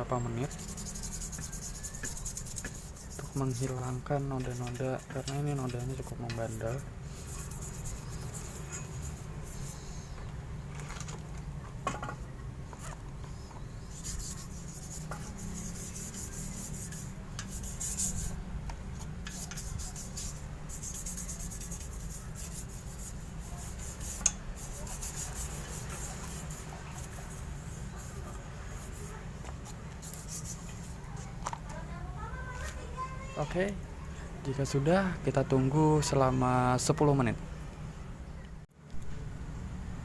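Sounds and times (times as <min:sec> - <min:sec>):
toothbrush scrubbing metal: 0:00.2 - 0:10.2, 0:13.8 - 0:31.2.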